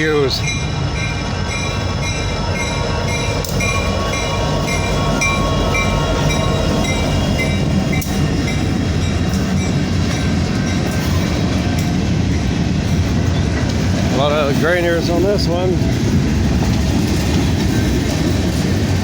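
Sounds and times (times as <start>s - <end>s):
crossing bell dinging: 0.0s - 13.6s
freight train rumbling on rails: 0.0s - 19.0s.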